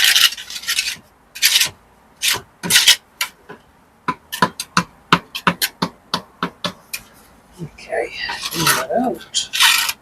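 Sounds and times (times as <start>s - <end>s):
trowel scraping mortar: 0.0s - 3.0s, 8.2s - 10.0s.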